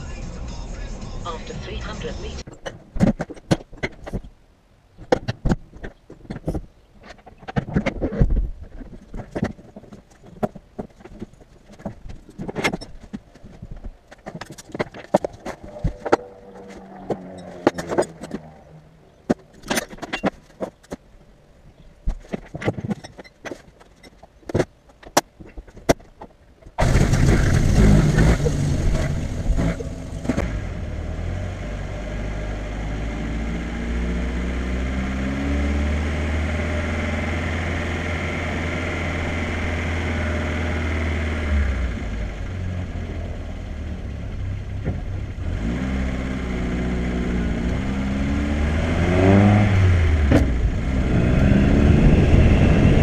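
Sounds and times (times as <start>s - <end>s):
car engine starting and running: 0.0s - 2.5s, 14.4s - 20.5s, 26.8s - 53.0s
sharp clicks and knocks: 2.4s - 4.3s, 5.0s - 18.6s, 19.2s - 21.0s, 22.0s - 28.4s.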